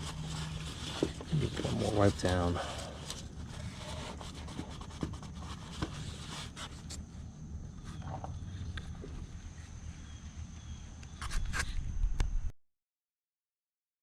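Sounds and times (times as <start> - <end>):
rag rubbing and wiping: 0.0 - 7.1.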